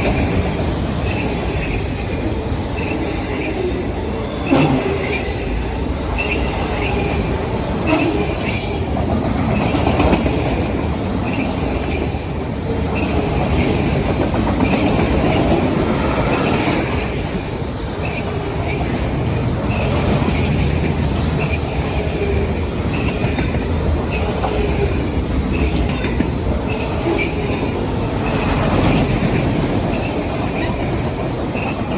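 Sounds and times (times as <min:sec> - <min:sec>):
train wheels rumbling on rail: 0:00.0 - 0:31.9
high wheel squeals: 0:26.7 - 0:29.2.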